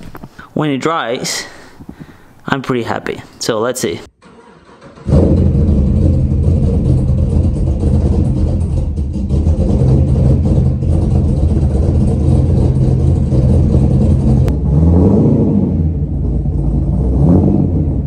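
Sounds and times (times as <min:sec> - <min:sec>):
car engine idling: 0:04.2 - 0:15.0, 0:15.8 - 0:18.0.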